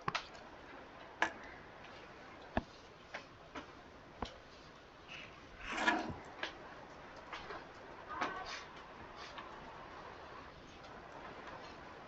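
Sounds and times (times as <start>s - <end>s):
small clicks and taps: 0.0s - 4.9s
soft murmur: 4.4s - 12.0s.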